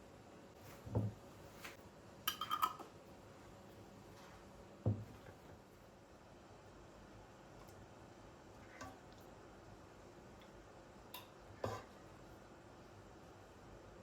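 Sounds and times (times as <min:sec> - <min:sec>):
objects set down with soft thud: 0:00.6 - 0:01.8, 0:04.8 - 0:05.4.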